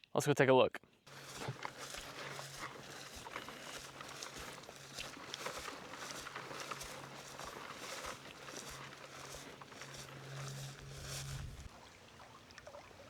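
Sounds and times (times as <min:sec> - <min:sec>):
footsteps through grass: 0:01.1 - 0:11.9
faint low hum: 0:05.8 - 0:13.0.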